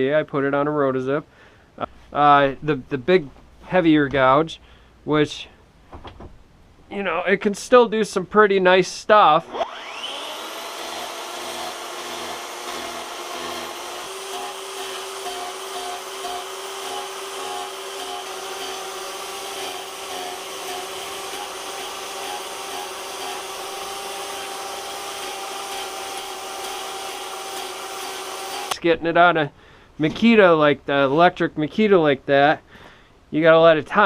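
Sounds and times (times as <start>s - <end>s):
rotary tool whining: 9.5s - 28.8s.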